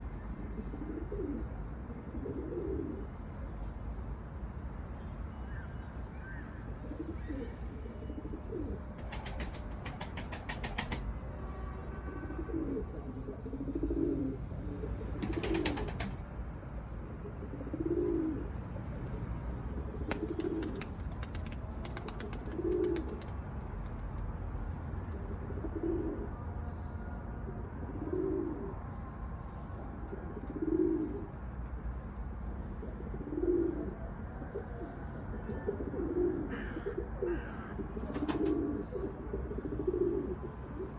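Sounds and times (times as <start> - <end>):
pigeons cooing: 0.6 - 3.1, 6.8 - 11.0, 12.4 - 16.2, 17.2 - 18.5, 19.8 - 23.3, 25.2 - 26.3, 27.8 - 28.8, 30.1 - 31.3, 32.8 - 40.9
wings flapping: 9.0 - 11.1, 15.2 - 16.2, 20.1 - 24.3, 38.1 - 38.6.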